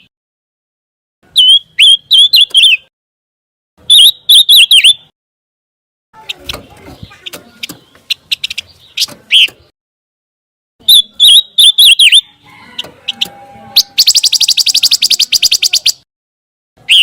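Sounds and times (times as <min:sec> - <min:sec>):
songbird singing: 0:01.2 - 0:02.9, 0:03.8 - 0:05.1, 0:06.2 - 0:09.7, 0:10.8 - 0:16.1, 0:16.8 - 0:17.0.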